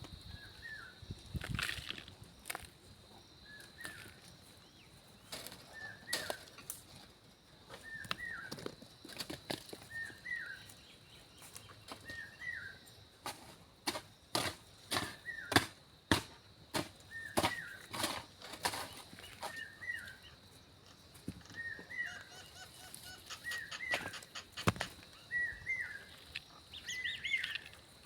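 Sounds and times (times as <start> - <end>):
digging tool striking stony ground: 13.2 - 19.6, 23.8 - 25.1
bird calling: 21.3 - 27.8.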